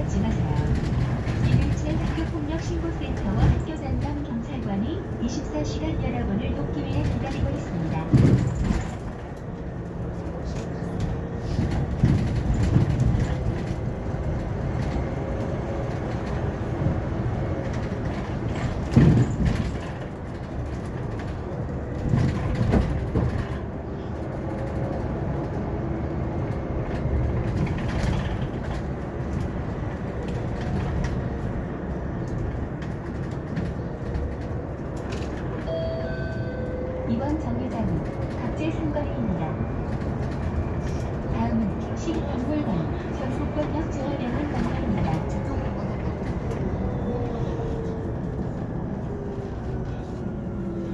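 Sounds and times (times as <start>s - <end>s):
bus road noise rumble: 0.0s - 50.9s
knocks from the ride: 18.6s - 20.0s.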